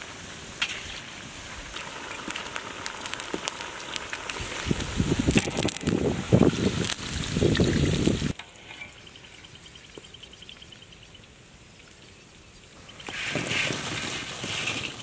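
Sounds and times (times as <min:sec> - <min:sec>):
hot oil sizzling in a wok: 0:00.0 - 0:08.4
faint high chirping: 0:08.6 - 0:13.2.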